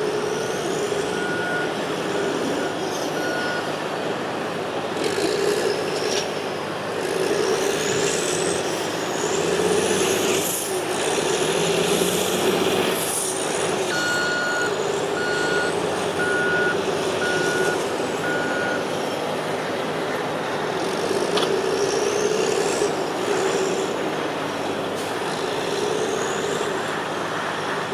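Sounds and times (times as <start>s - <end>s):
diesel engine drone with whine: 0.0s - 27.9s
backup alarm beeping: 13.9s - 18.9s.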